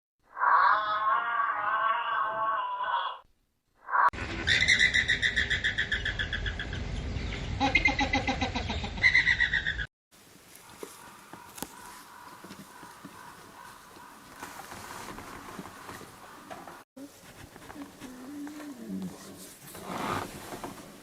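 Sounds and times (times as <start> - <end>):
lower falling animal call: 0.3 - 3.2.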